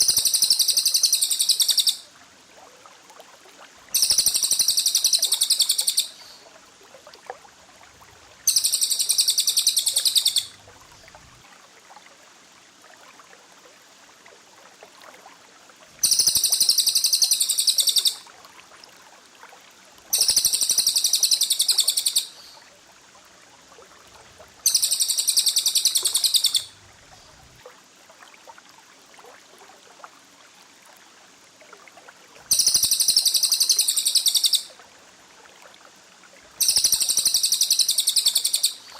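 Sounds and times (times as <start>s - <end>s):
bird rapid high-pitched trilling: 0.0s - 2.0s, 4.0s - 6.4s, 8.5s - 10.5s, 16.0s - 18.2s, 20.1s - 22.4s, 24.6s - 26.7s, 32.5s - 34.7s, 36.6s - 38.9s.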